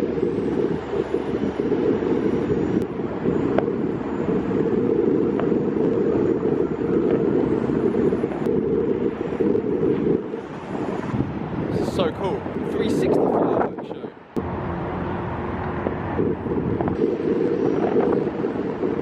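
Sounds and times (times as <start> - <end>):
wind buffeting microphone: 0.0 - 19.0
distant fireworks popping: 4.4 - 11.2.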